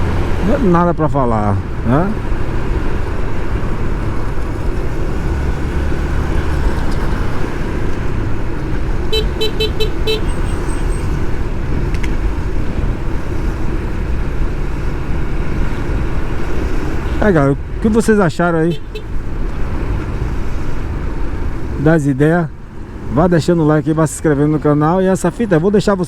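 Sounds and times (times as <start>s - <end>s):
motorcycle engine rumble: 0.0s - 23.8s
short horn beeps: 9.1s - 11.1s.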